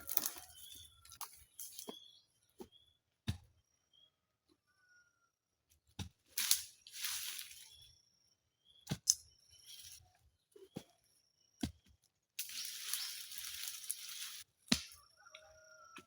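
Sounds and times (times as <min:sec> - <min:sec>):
rustling scrapes: 0:06.4 - 0:07.8, 0:12.4 - 0:14.5.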